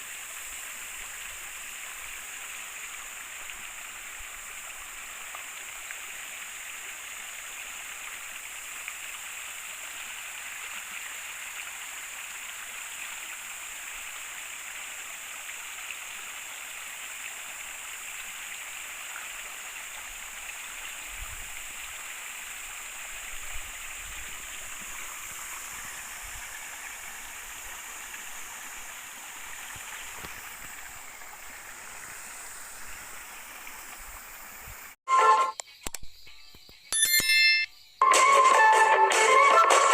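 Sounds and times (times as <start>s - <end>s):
river water flowing over stones: 0.0s - 35.0s.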